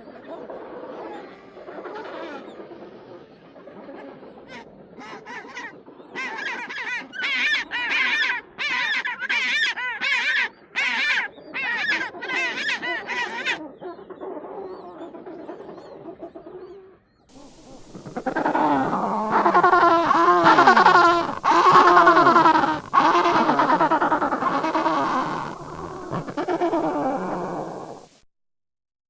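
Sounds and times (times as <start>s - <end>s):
penguins calling: 4.0s - 13.6s, 17.3s - 28.1s.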